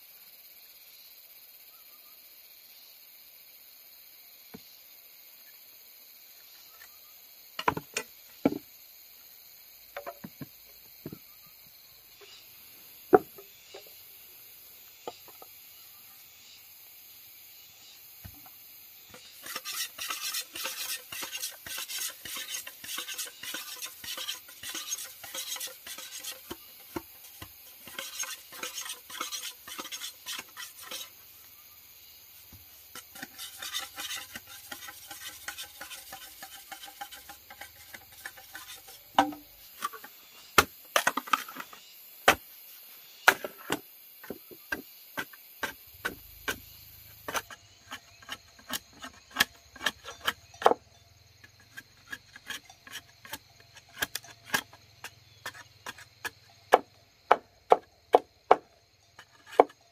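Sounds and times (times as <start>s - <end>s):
sharp knocks on wood: 7.6s - 8.6s, 13.1s - 13.9s, 39.2s - 39.4s, 56.7s - 58.7s
scraping and rubbing on wood: 19.1s - 31.2s, 32.5s - 42.4s, 43.3s - 50.8s, 51.4s - 59.9s.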